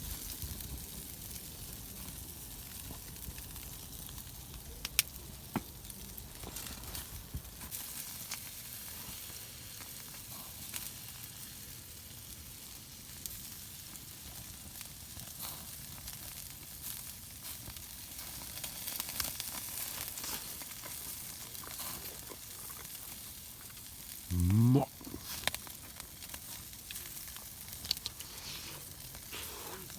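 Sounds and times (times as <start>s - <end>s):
food sizzling in a pan: 6.4s - 29.9s
small pops: 27.8s - 28.4s.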